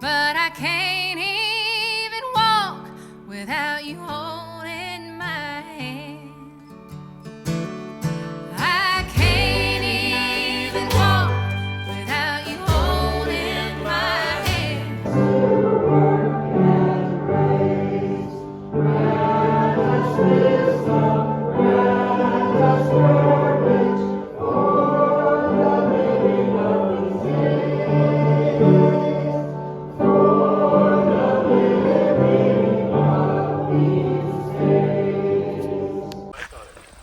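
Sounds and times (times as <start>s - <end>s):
choir singing gospel song: 8.6s - 36.3s.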